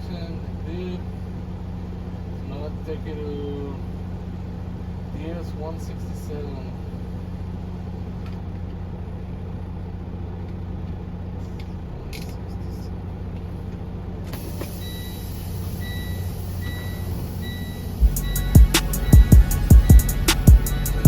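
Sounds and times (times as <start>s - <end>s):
diesel truck engine running: 0.0s - 21.0s
air hiss: 14.4s - 21.0s
reversing alarm beeping: 14.4s - 21.0s.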